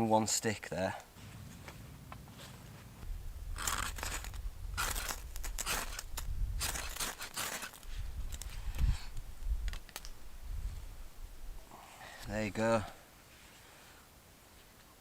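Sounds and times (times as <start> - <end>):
knife scraping wood: 3.6 - 7.9.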